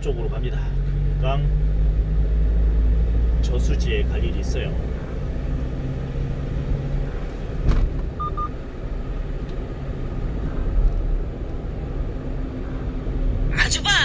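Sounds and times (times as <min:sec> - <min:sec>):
truck engine and road noise: 0:00.0 - 0:14.0
short electronic beeps: 0:08.2 - 0:08.6.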